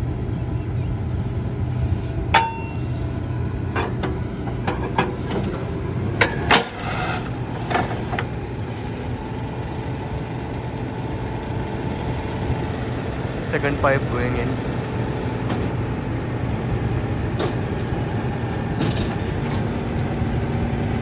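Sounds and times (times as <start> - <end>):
drilling rig engine running: 0.0 - 21.0
metallic clanks of drill pipes: 2.3 - 3.0, 3.7 - 8.4.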